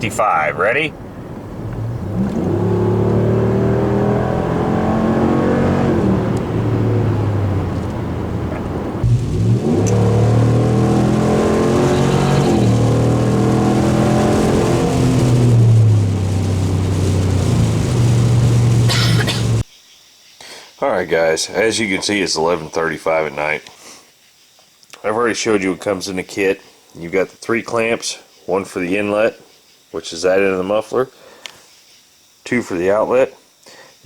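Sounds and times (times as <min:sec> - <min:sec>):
truck engine revving with gear changes: 0:00.9 - 0:19.6.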